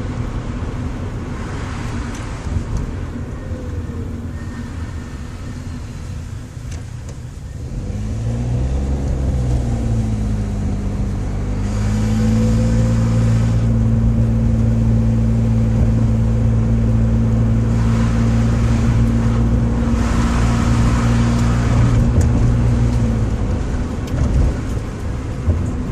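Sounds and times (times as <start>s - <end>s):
car engine droning: 0.0s - 25.9s.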